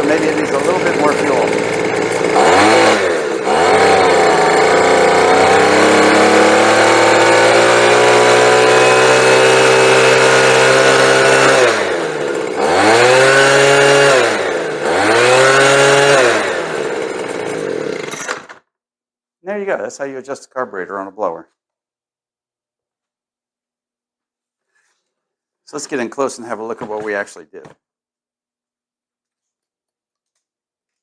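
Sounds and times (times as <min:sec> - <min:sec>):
leaf blower engine revving: 0:00.0 - 0:18.5.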